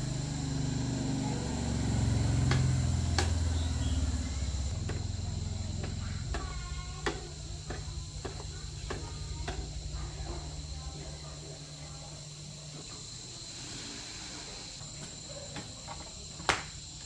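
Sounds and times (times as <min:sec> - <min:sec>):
low motor hum: 0:00.0 - 0:12.8
high insect drone: 0:00.0 - 0:17.0
sharp knocks and clicks: 0:02.4 - 0:03.6, 0:04.7 - 0:10.6.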